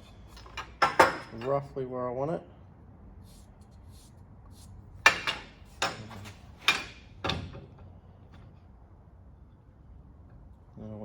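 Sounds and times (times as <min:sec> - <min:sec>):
hard objects clunking together: 0:00.3 - 0:01.5
marker scratching: 0:03.3 - 0:04.8.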